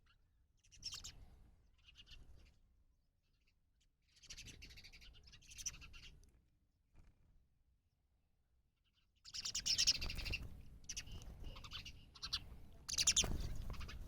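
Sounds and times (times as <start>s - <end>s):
small bird chirping: 0.0s - 2.6s, 4.1s - 6.3s, 8.8s - 14.0s.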